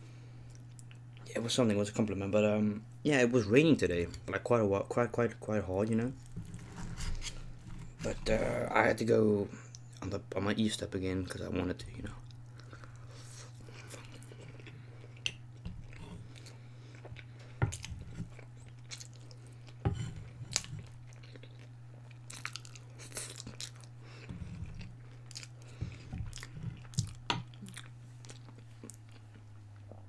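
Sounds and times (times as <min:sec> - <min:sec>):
steady low hum: 0:00.0 - 0:30.0
chewing and crunching: 0:12.1 - 0:30.0.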